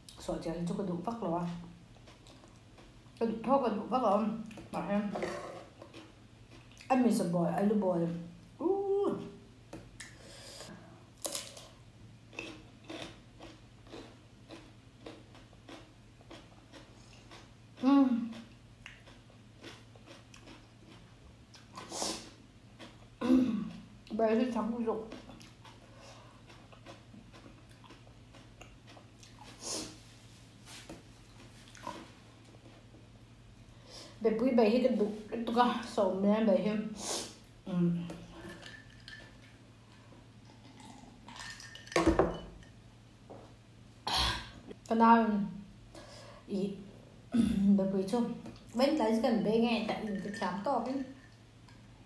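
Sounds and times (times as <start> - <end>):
person chewing and biting food: 12.3 - 21.9, 25.2 - 30.0.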